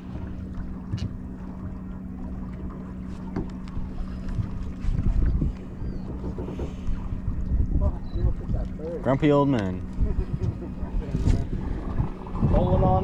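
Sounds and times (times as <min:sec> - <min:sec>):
boat motor humming: 0:00.0 - 0:13.0
wind buffeting microphone: 0:03.4 - 0:13.0.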